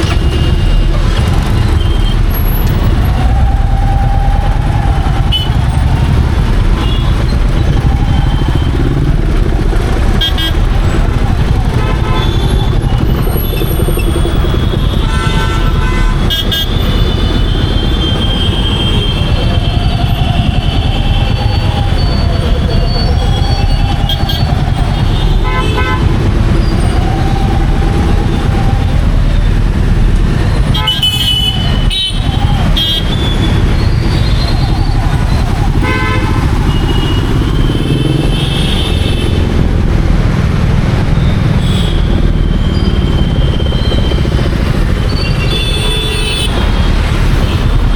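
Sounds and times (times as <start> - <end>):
motorcycle engine running: 0.0 - 47.9
vehicle horns honking: 5.3 - 5.6, 10.2 - 10.7, 11.8 - 13.0, 14.7 - 26.2, 30.7 - 34.6, 35.8 - 39.5, 41.2 - 44.2, 45.1 - 47.8.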